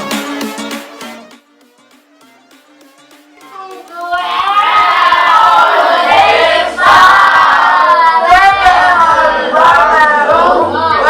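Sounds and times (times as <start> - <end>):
group singing in unison: 4.1 - 11.0.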